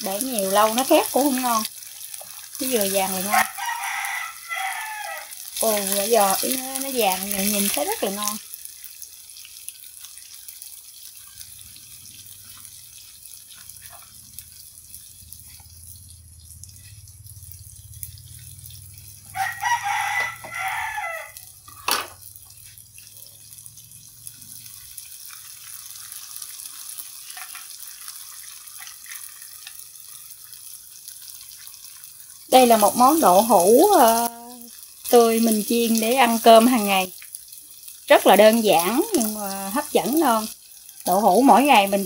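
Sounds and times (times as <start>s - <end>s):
tofu sizzling in a pan: 0.0s - 42.0s
rooster crowing: 3.3s - 5.5s, 19.2s - 21.6s.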